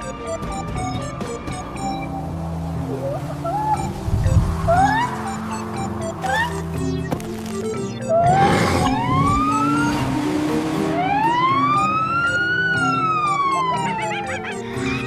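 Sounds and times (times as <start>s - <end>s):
background music: 0.0s - 15.0s
police siren wailing: 2.9s - 6.8s, 7.8s - 15.0s.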